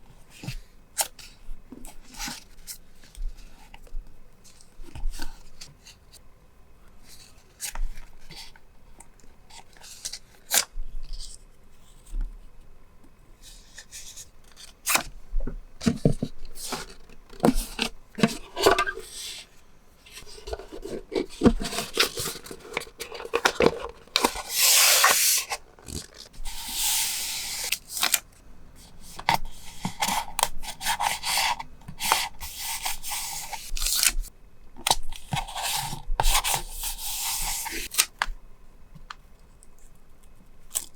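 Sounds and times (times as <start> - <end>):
paper rubbing and tearing: 24.2 - 28.2.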